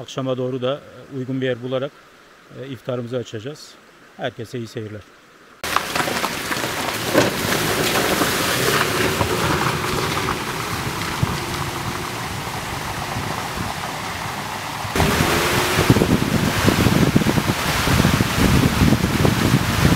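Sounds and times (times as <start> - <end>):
tyres crackling over gravel: 5.6 - 19.5
road and wind noise: 5.6 - 19.9.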